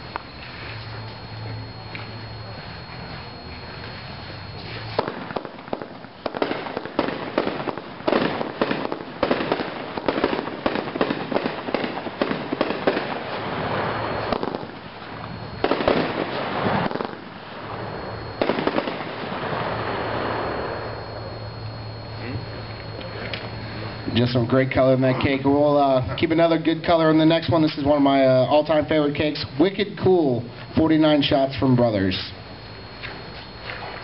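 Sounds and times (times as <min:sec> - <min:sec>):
fireworks cake firing shots: 0:04.9 - 0:17.3, 0:18.4 - 0:19.8.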